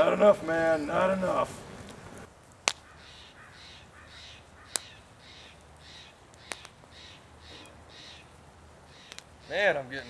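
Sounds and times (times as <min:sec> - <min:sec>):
sharp cracks: 0:01.4 - 0:03.3, 0:03.9 - 0:09.5
bird cawing: 0:02.7 - 0:09.9.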